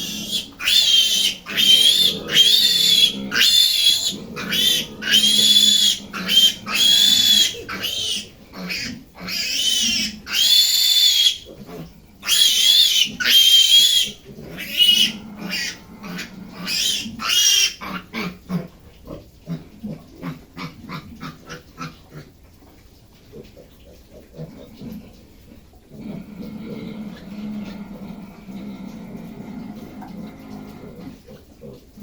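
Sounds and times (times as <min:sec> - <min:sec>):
piglets squealing: 0:00.0 - 0:11.5, 0:12.2 - 0:18.4
piglets grunting: 0:00.0 - 0:22.3, 0:25.9 - 0:32.0.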